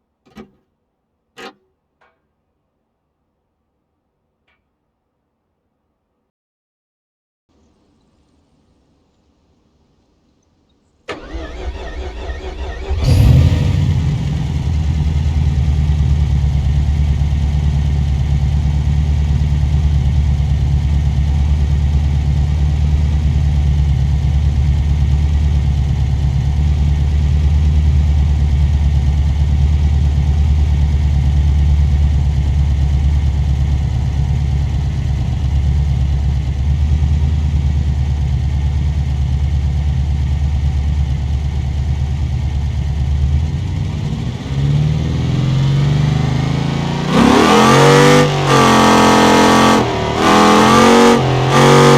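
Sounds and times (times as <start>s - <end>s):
engine idling: 11.1s - 45.7s.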